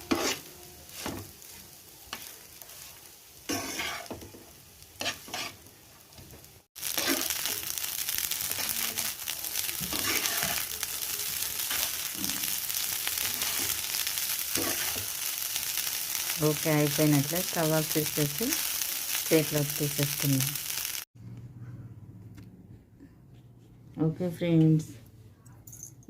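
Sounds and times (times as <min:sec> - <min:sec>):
spatula scraping and tapping pan: 0:00.0 - 0:01.3, 0:03.5 - 0:04.4, 0:05.0 - 0:05.6, 0:09.8 - 0:10.7
oil sizzling in a pan: 0:00.0 - 0:21.1.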